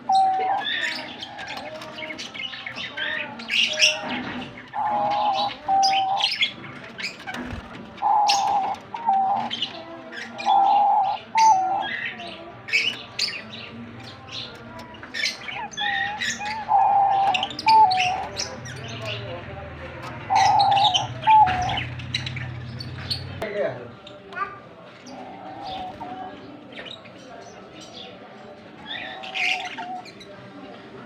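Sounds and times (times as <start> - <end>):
dove cooing: 0.0 - 2.0, 4.7 - 6.5, 8.0 - 9.6, 15.6 - 18.3, 20.3 - 21.9
birds chirping: 0.0 - 31.0.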